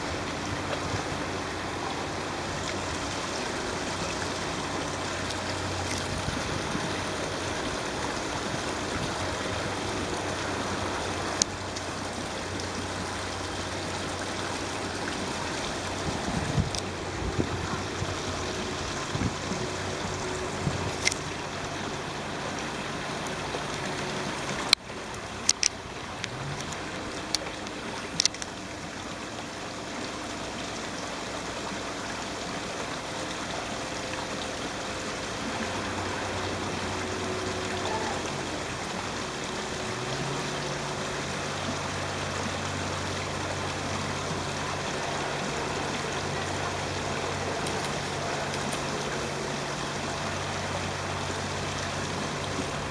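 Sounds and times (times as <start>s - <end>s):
low hum: 0.0s - 52.9s
stream water rushing: 0.0s - 52.9s
sharp clicks: 24.7s - 28.5s.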